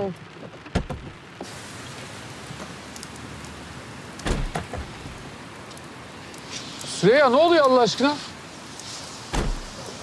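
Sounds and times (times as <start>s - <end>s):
steady rain falling: 0.0s - 10.0s
dull thump: 9.3s - 9.7s.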